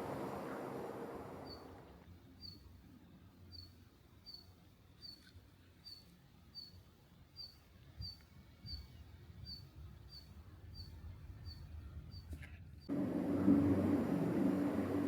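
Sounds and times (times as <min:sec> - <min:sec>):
small bird chirping: 0:01.4 - 0:01.8, 0:02.4 - 0:02.7, 0:03.5 - 0:12.4
faint low rumble: 0:10.8 - 0:15.0.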